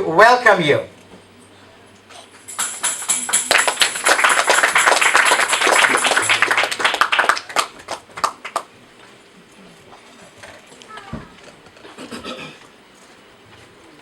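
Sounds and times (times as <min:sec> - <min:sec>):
congregation clapping: 0:02.4 - 0:08.8
high jingle: 0:02.5 - 0:06.6.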